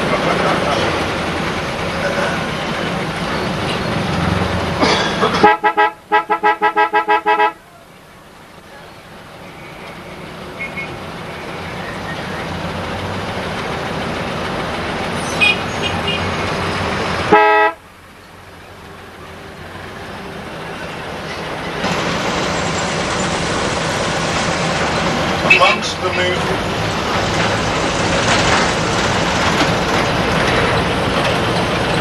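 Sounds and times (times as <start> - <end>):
traffic engine and road noise: 0.0 - 32.0
vehicle horns tooting: 5.2 - 7.8, 10.6 - 11.0, 15.2 - 16.5, 17.3 - 17.8, 25.4 - 26.4
loud horn blast: 5.3 - 7.6, 17.3 - 17.8.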